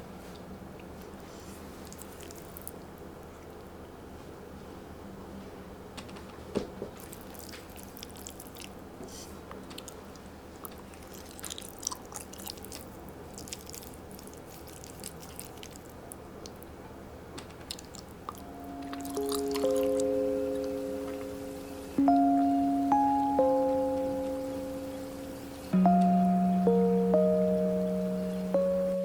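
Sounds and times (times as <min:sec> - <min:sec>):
person chewing and biting: 0:01.8 - 0:02.8, 0:07.0 - 0:08.8, 0:09.7 - 0:16.7, 0:17.6 - 0:20.8
small crunchy clicks: 0:17.4 - 0:20.0.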